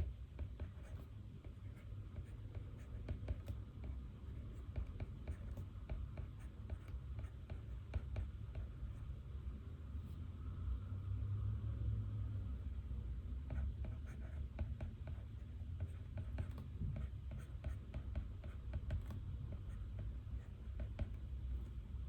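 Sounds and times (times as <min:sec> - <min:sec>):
low room rumble: 0:00.0 - 0:22.0
pen scratching on paper: 0:00.4 - 0:09.1, 0:13.5 - 0:21.8.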